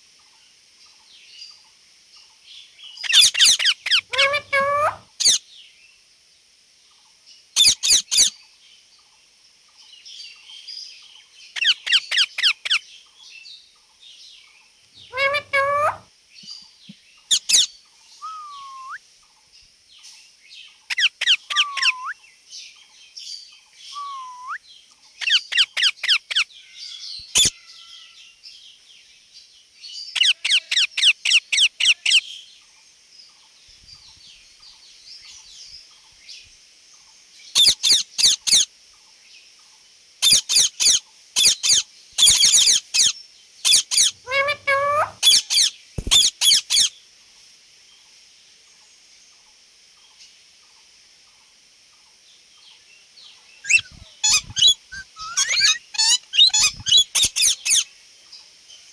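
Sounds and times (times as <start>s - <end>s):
parrot calling high-pitched notes: 3.0s - 5.4s, 15.0s - 16.0s, 17.3s - 19.0s, 20.9s - 22.2s, 24.0s - 24.6s, 27.3s - 27.7s, 43.7s - 46.9s, 53.6s - 57.8s
parrot whistles: 3.2s - 5.4s, 15.1s - 16.0s, 18.2s - 19.0s, 21.5s - 22.2s, 23.9s - 24.6s, 43.7s - 46.6s, 53.6s - 57.8s.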